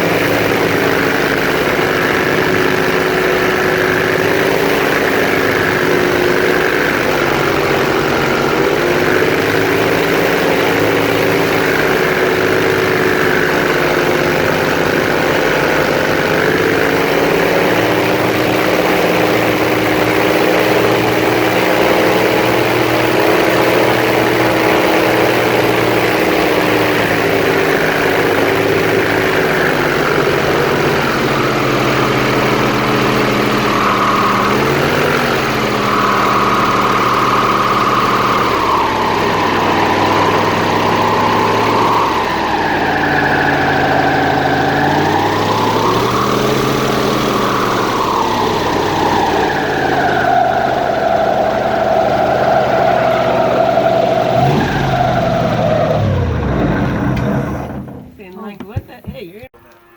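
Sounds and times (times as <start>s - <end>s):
airboat engine and propeller: 0.0s - 43.8s.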